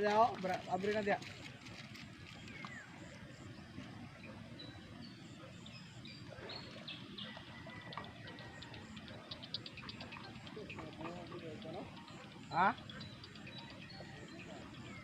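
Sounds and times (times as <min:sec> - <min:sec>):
bird chirps and calls: 0:05.6 - 0:15.0.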